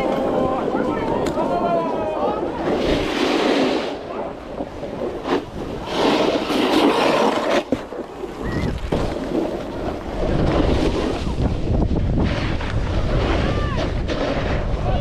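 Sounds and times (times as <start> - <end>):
wind buffeting microphone: 0.0 - 7.2, 8.0 - 15.0
snowboard hissing over snow: 2.7 - 4.1.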